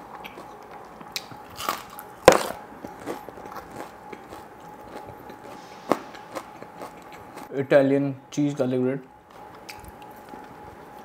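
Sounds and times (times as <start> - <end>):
onion ring crunching: 0.1 - 7.5
wet mouth sounds: 3.5 - 7.5.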